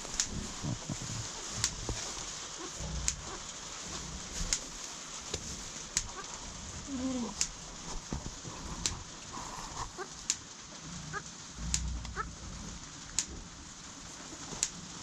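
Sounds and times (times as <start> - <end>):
sliding animal call: 0.0 - 15.0
steady hiss: 0.0 - 15.0
sharp ticks: 2.9 - 4.7, 10.0 - 10.5, 11.1 - 12.3, 13.1 - 13.4.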